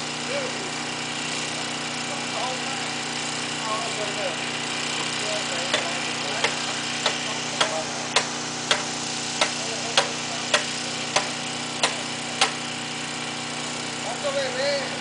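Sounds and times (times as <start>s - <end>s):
engine idling: 0.0s - 15.0s
sharp knocks: 5.7s - 12.6s.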